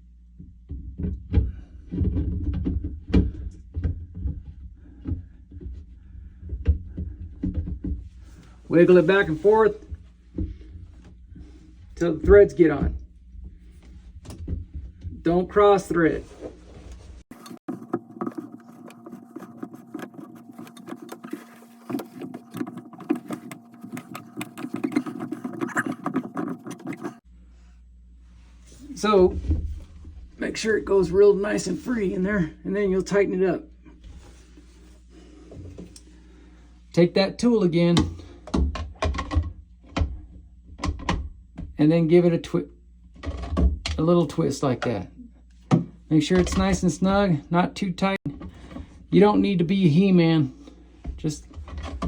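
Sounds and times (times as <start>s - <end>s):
plastic filter housing knocks and scrapes: 17.3s - 27.2s, 51.1s - 52.0s.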